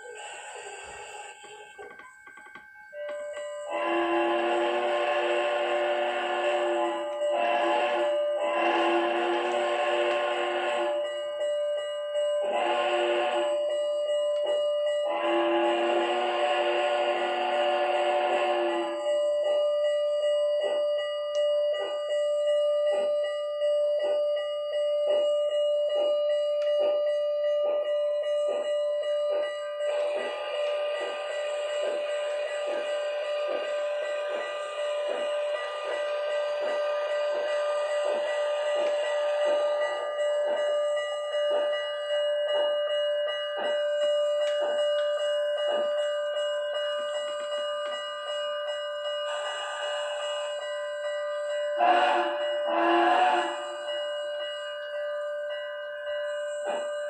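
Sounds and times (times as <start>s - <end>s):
hiss: 0.0s - 1.7s
steam locomotive exhaust chuffs: 0.0s - 13.8s, 14.4s - 19.2s, 26.7s - 54.5s.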